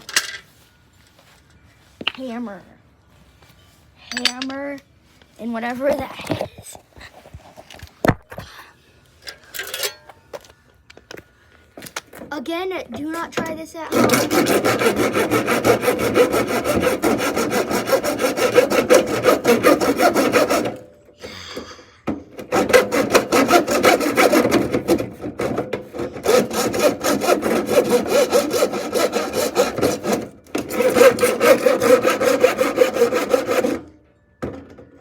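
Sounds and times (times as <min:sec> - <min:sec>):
hand saw cutting: 0:13.9 - 0:20.9, 0:22.4 - 0:33.9.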